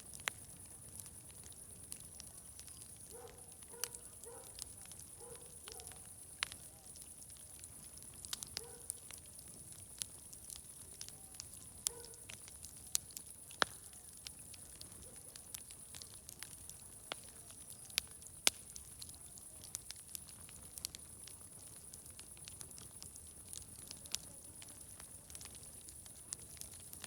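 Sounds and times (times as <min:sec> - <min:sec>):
wood fire crackling: 0:00.0 - 0:27.0.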